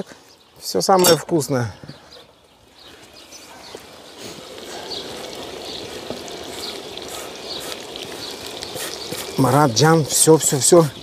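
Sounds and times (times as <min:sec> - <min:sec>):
food sizzling in a frying pan: 0:02.4 - 0:11.0.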